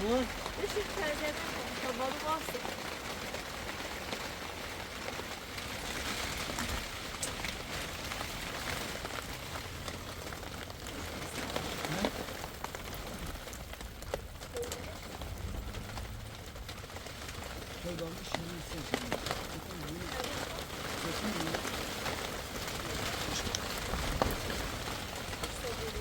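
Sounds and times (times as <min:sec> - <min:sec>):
rain falling: 0:00.0 - 0:26.0
low rumble: 0:06.2 - 0:19.8.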